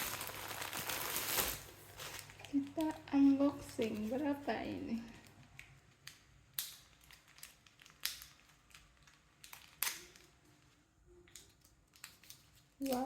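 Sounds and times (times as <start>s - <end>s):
plastic snack packet crinkling: 0.0s - 13.0s.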